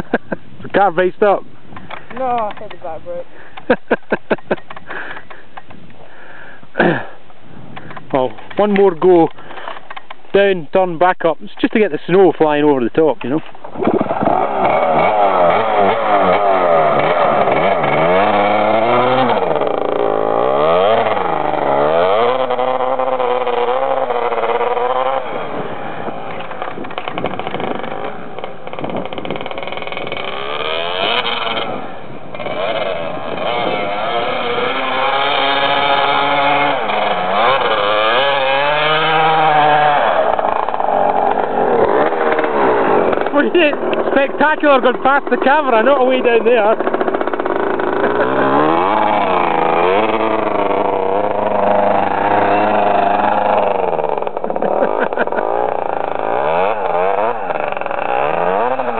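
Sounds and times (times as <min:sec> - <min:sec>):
dirt bike engine revving: 0:13.4 - 0:58.9.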